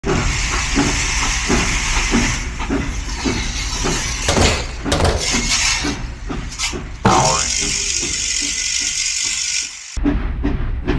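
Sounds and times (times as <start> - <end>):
steam train chugging: 0.0 - 10.9
steam hiss: 0.1 - 10.0
clattering clinking knocks: 2.7 - 6.5.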